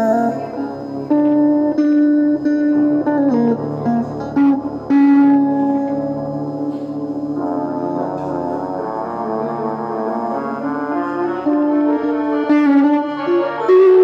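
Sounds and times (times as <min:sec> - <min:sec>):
slow instrumental melody: 0:00.0 - 0:14.0.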